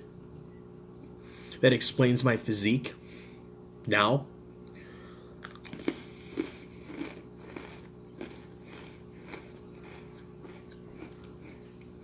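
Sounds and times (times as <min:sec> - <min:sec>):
person chewing cookie crunches: 0:05.4 - 0:12.0.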